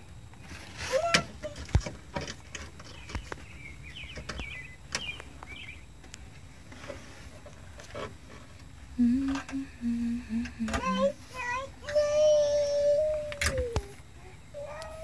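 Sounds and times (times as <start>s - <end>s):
birds chirping: 2.7s - 6.1s, 9.0s - 11.4s
child vocal sound: 9.0s - 15.0s.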